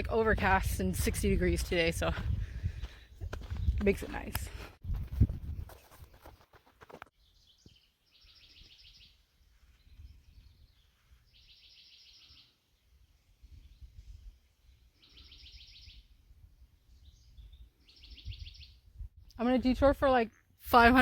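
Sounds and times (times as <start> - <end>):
songbird singing with trill: 7.2 - 12.6, 13.6 - 16.2, 16.9 - 18.9.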